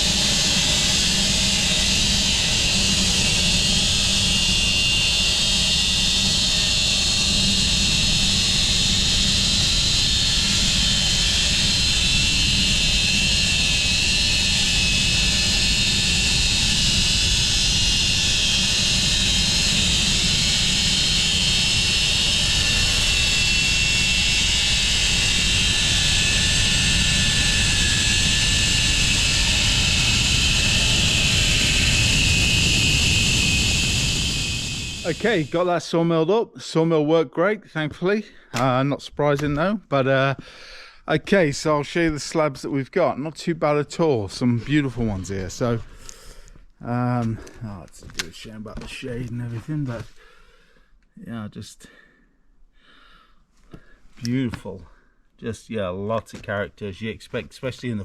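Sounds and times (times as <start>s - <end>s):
bandsaw cutting log: 0.0s - 35.8s.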